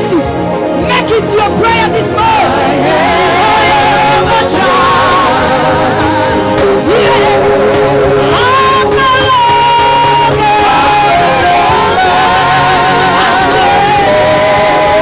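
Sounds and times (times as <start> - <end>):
band accompaniment: 0.0 - 15.0
person singing with vibrato: 0.9 - 15.0.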